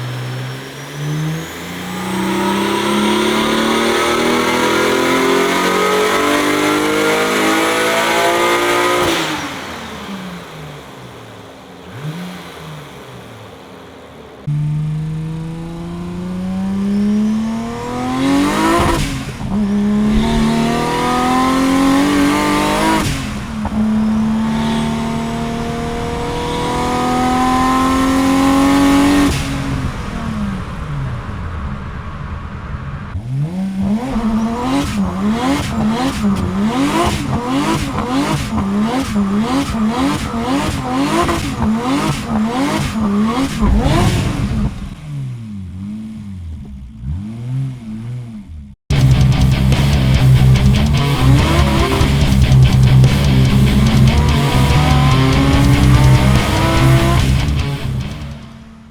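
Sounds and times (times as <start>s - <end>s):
car engine full-throttle pull: 0.0s - 58.9s
engine revving with sharp cracks: 0.0s - 58.9s.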